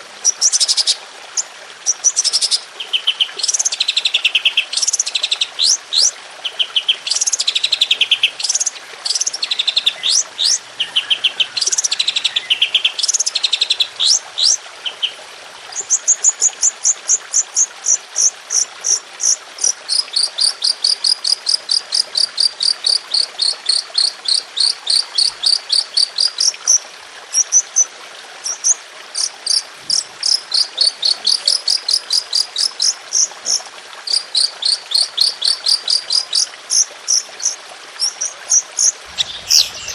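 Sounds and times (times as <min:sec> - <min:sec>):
songbird rapid sharp notes: 0:39.1 - 0:39.9.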